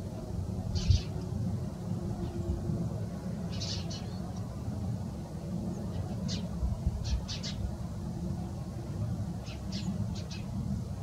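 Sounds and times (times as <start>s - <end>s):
small birds chirping: 0.7s - 1.3s, 3.5s - 4.5s, 5.7s - 7.7s, 9.4s - 10.6s.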